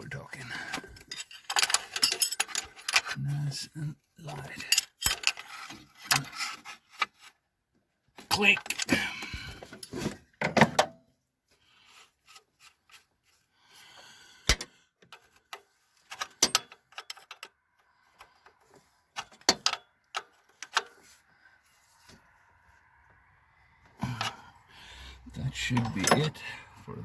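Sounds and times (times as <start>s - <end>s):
tools clicking and knocking: 0.7s - 3.2s, 4.6s - 7.2s, 8.2s - 11.0s, 14.4s - 21.1s, 25.7s - 26.4s.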